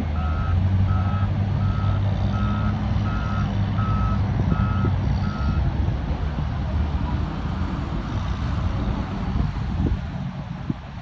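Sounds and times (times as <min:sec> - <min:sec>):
heavy vehicle engine running: 0:00.0 - 0:11.0
reversing alarm beeping: 0:00.2 - 0:05.6.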